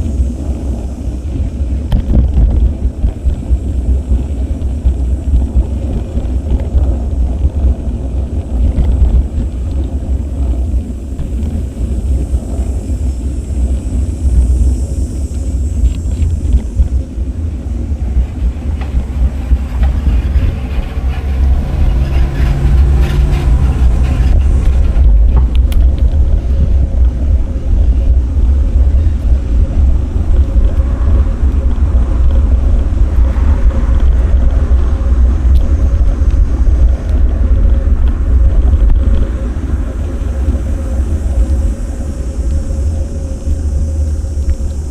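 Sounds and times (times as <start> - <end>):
wind rumble on microphone: 0.0 - 44.9
motor vehicle passing: 16.7 - 27.6.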